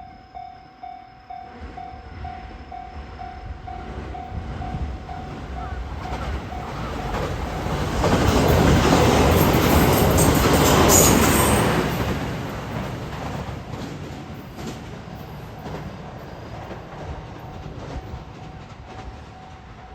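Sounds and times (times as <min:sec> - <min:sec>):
train running noise: 0:00.0 - 0:19.9.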